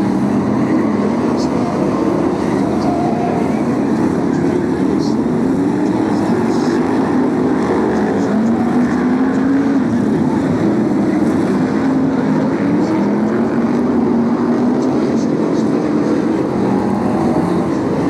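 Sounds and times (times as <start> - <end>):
racing car engines droning: 0.0 - 18.0.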